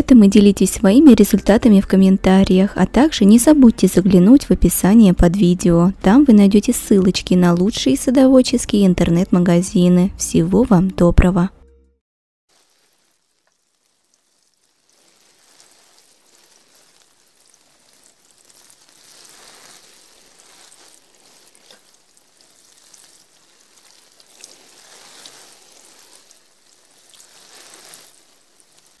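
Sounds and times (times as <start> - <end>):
rain falling: 12.5 - 29.0.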